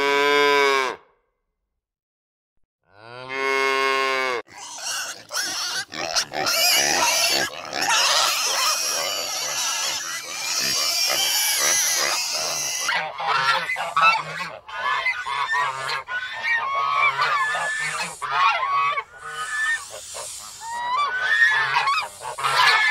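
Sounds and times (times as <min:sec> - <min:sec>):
geese honking: 0:11.6 - 0:22.9.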